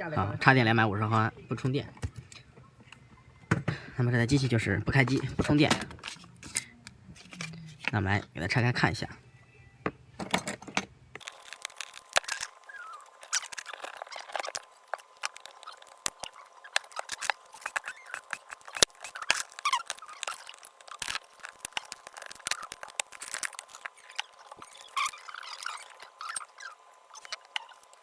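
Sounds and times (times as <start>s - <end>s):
small hand tools clicking and scraping: 4.4s - 8.0s, 11.2s - 28.0s.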